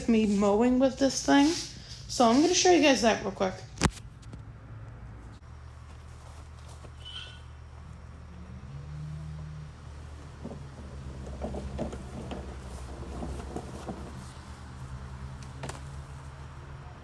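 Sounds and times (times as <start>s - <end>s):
electric lawn mower running: 9.6s - 14.9s.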